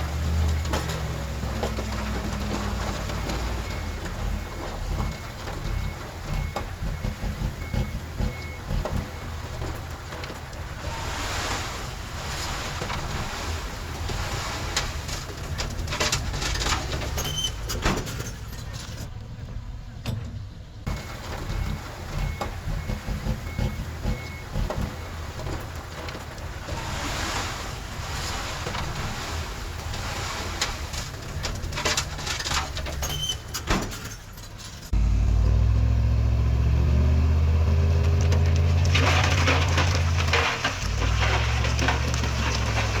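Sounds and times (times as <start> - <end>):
heavy machinery diesel engines: 0.0 - 43.0
clanks and rattles: 14.0 - 27.5, 28.1 - 35.0, 38.0 - 43.0.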